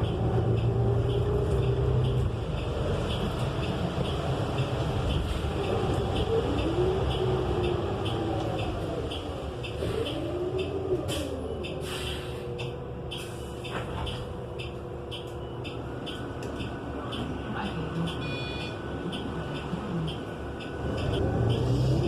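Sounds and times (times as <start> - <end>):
light regular ticking: 0.0 - 9.8, 19.0 - 21.2
bus engine running loud: 0.0 - 22.0.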